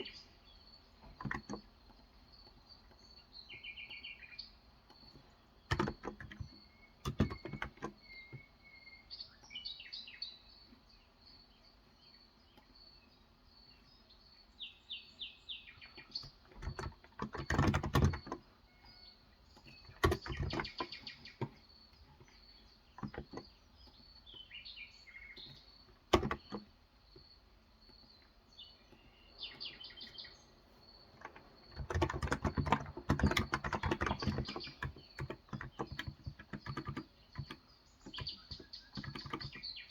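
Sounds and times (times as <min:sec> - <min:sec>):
birds chirping: 0:00.0 - 0:39.9
typing on a keyboard: 0:01.0 - 0:03.0, 0:04.9 - 0:08.4, 0:15.9 - 0:24.0, 0:25.4 - 0:26.7, 0:31.1 - 0:39.7.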